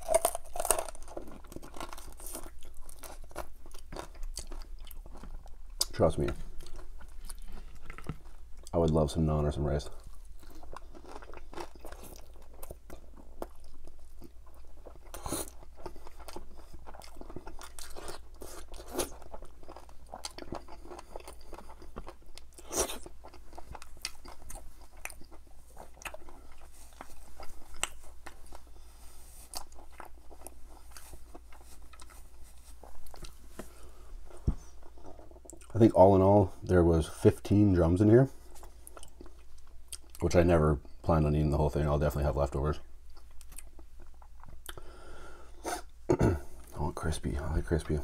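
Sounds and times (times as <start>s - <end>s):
chewing crispy chicken: 0.0s - 9.2s, 9.8s - 35.8s.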